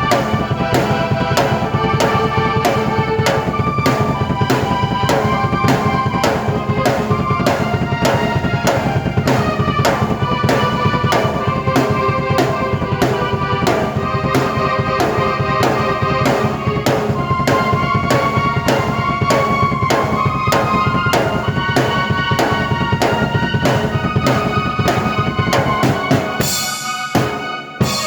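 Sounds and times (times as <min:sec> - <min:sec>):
drum beat: 0:00.0 - 0:28.0
keyboard melody: 0:00.0 - 0:28.0.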